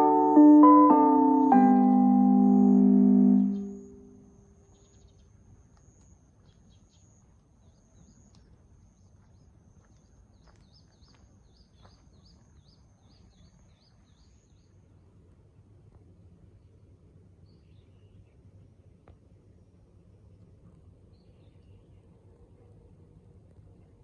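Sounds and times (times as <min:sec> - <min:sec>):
faint high-pitched tone: 0:00.0 - 0:04.9.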